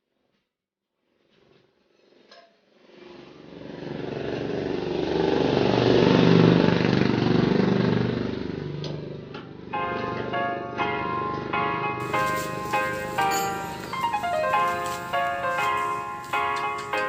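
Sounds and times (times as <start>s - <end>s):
motorcycle engine running: 3.6s - 9.3s.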